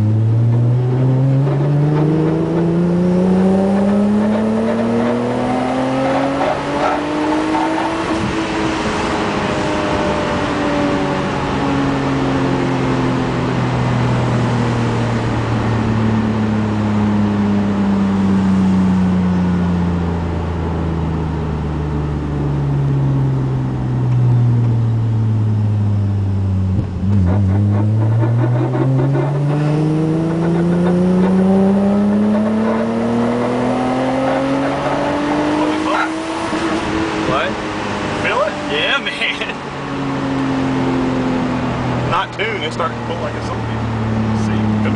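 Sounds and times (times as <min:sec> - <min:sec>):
car engine revving: 0:00.0 - 0:44.9
engine clatter: 0:26.7 - 0:32.8.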